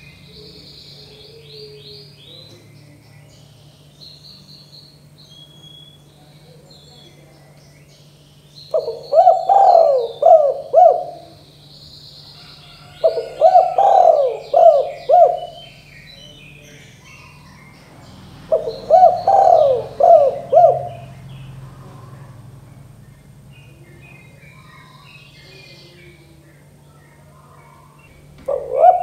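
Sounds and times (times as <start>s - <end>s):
dove cooing: 0.0s - 2.6s, 8.7s - 11.6s, 12.3s - 23.0s, 27.2s - 29.0s
small birds chirping: 0.0s - 29.0s.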